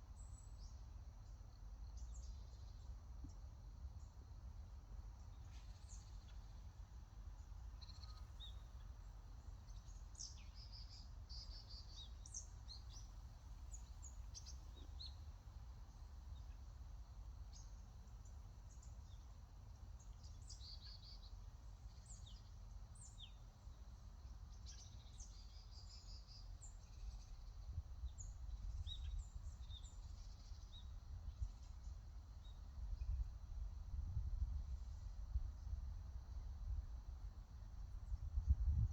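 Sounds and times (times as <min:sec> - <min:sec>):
small birds chirping: 0:07.8 - 0:16.7.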